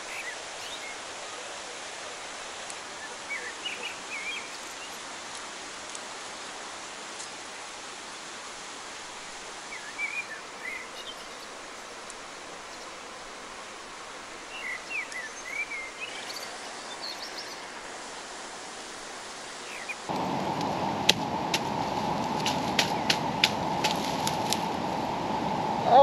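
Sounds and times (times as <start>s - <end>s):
mountain creek rushing: 0.0s - 26.0s
small bird chirping: 14.5s - 17.8s, 19.6s - 20.1s.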